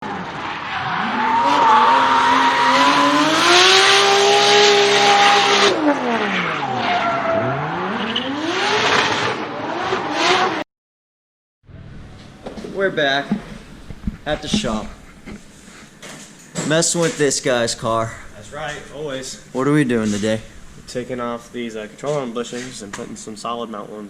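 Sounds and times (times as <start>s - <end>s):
loud tyre noise: 0.0s - 10.6s, 11.7s - 23.4s
car engine revving hard: 0.1s - 10.6s.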